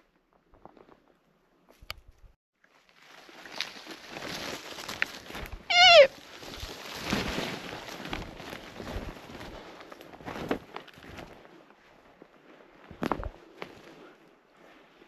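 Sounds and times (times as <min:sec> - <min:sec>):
footsteps rustling through scrub: 0:02.7 - 0:14.0
deer alarm bark: 0:05.7 - 0:06.1.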